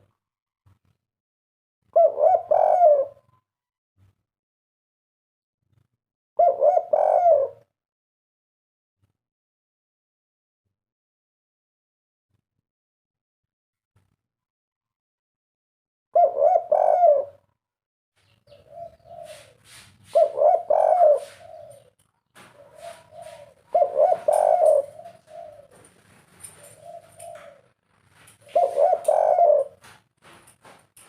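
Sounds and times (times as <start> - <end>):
dove cooing: 2.0 - 3.4, 6.4 - 7.7, 16.2 - 17.5, 18.5 - 30.9.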